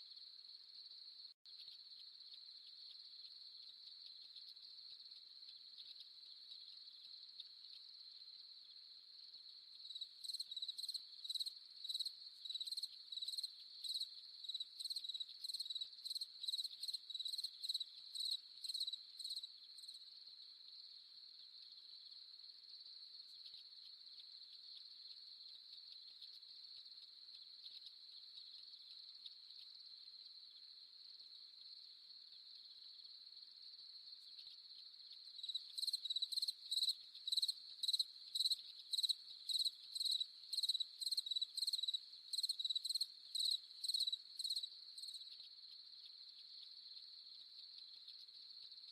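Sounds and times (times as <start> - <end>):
nearer cricket chirping: 0.0 - 48.9
crickets trilling: 33.7 - 48.8.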